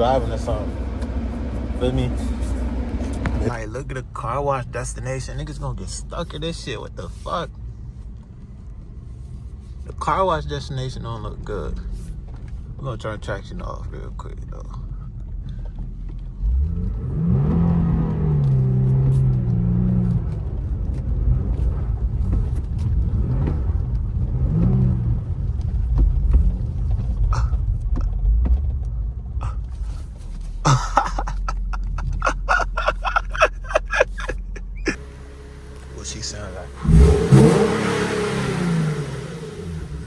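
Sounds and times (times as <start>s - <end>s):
car engine revving: 0.0s - 4.0s, 16.2s - 40.0s.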